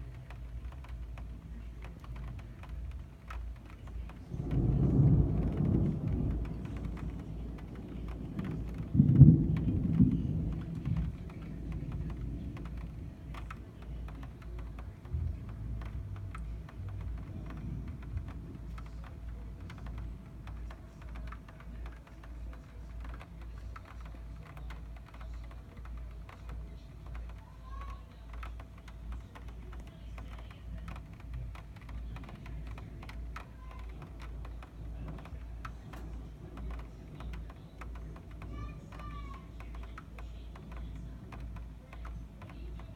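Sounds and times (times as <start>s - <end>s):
raindrops ticking: 0.0s - 42.9s
thunder rumbling: 4.2s - 22.1s.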